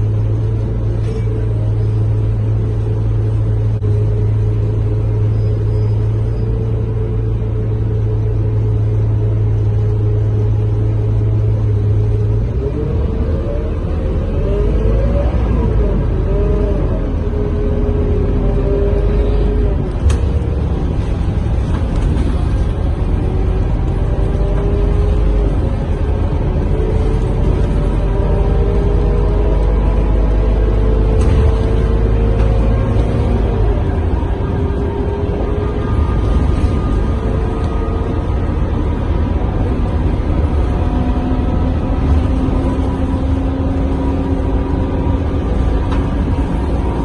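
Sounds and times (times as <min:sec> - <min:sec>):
bus diesel engine rumbling: 0:00.0 - 0:47.0
rising drivetrain whine: 0:00.0 - 0:47.0.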